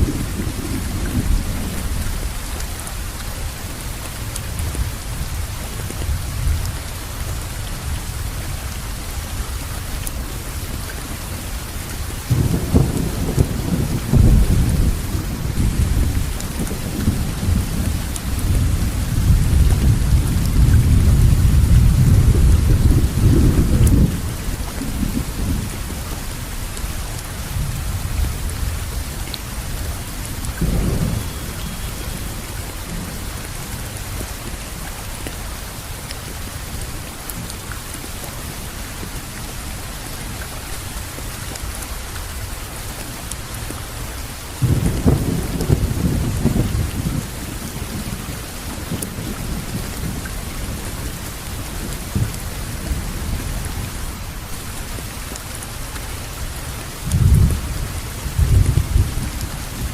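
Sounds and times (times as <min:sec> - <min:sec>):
low rolling thunder: 0:00.0 - 0:02.4, 0:12.2 - 0:26.1, 0:29.9 - 0:33.9, 0:44.6 - 0:54.6, 0:57.0 - 0:59.9
steady rain falling: 0:00.0 - 0:59.9.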